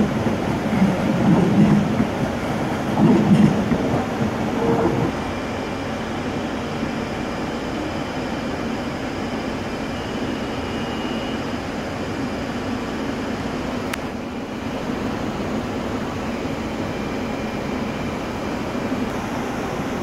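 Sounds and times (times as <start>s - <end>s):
train pulling out: 0.0s - 20.0s
trains rumbling and humming: 0.0s - 20.0s
faint high whistle: 9.8s - 11.6s.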